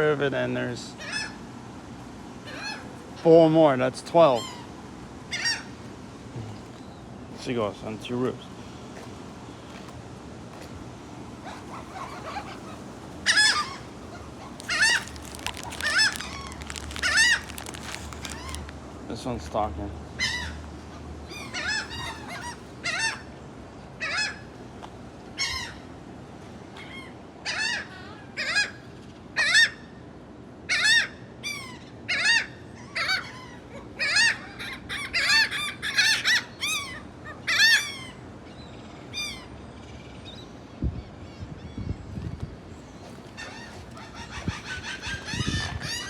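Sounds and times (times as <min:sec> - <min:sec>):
seagulls squawking: 0:11.5 - 0:18.6, 0:43.0 - 0:46.0.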